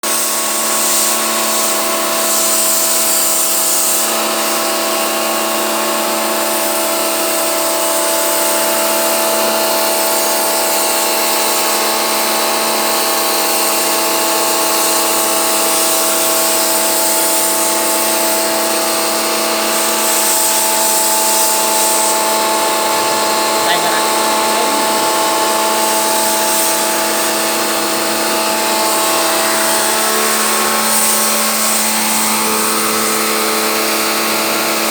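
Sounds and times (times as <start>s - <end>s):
pressure washer motor humming: 0.1s - 34.9s
water jet hissing: 0.1s - 34.9s.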